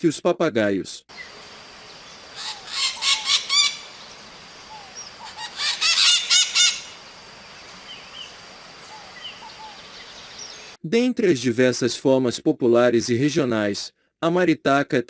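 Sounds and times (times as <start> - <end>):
faint bird chirps: 1.1 - 10.8
parrots screeching: 2.3 - 7.0.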